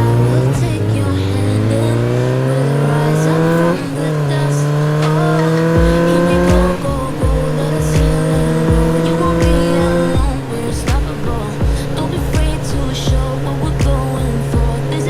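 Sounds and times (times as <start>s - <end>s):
vehicle engine accelerating: 0.0s - 15.0s
music with thumping bass beat: 5.0s - 15.0s.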